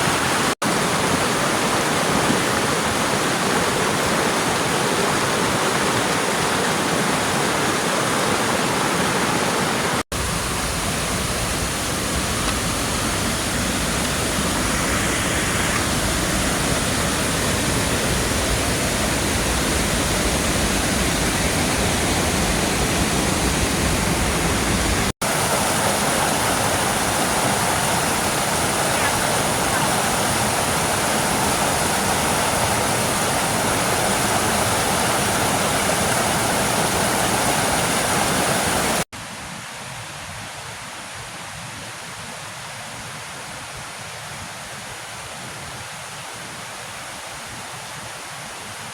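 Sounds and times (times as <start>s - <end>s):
waterfall roaring: 0.0s - 39.1s.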